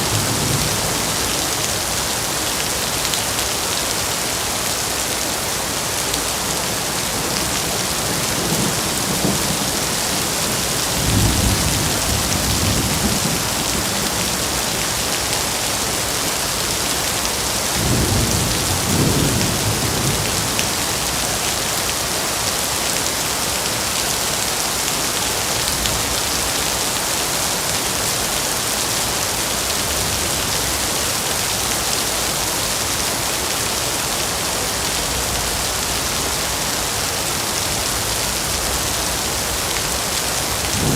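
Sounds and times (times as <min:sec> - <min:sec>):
steady rain: 0:00.0 - 0:40.9
low rumbles of thunder: 0:07.4 - 0:14.6.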